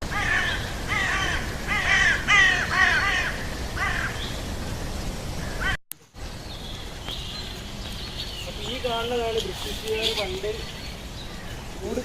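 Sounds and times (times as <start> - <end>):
crows cawing: 0.1 - 4.3, 5.4 - 5.8.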